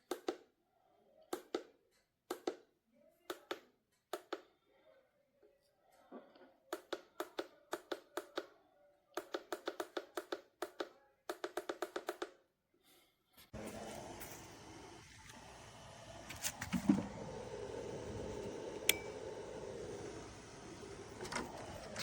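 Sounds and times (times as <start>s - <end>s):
air compressor hissing: 13.6s - 22.0s.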